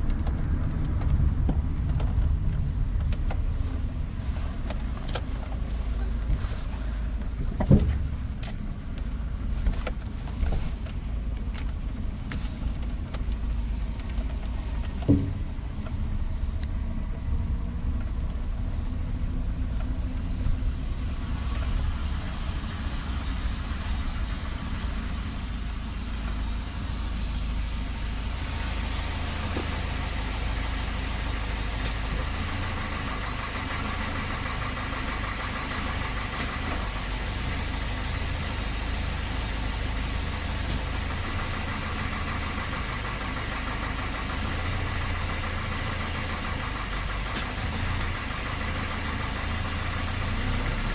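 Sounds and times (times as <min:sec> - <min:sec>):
car engine idling with knock: 0:00.0 - 0:50.9
high-pitched beep: 0:25.1 - 0:25.6.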